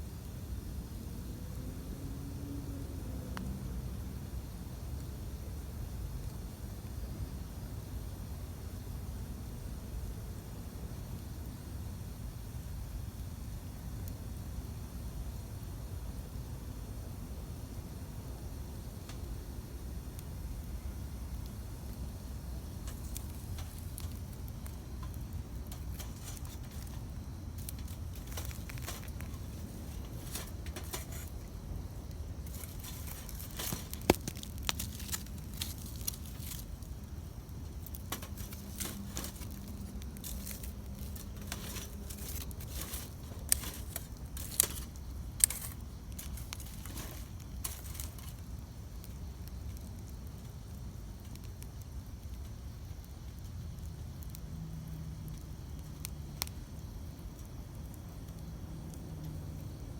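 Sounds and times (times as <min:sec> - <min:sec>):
campfire crackling and popping: 0:04.1 - 0:59.9
sharp loud fire snaps: 0:17.6 - 0:59.9.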